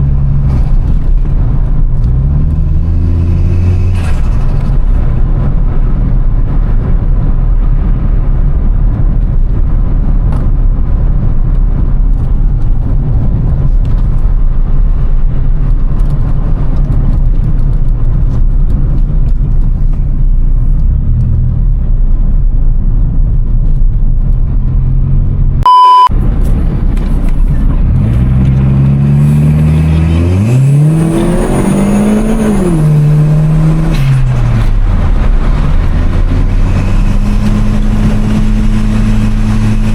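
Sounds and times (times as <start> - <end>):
car engine running and revving: 0.0 - 39.9
short high beep: 25.6 - 26.1.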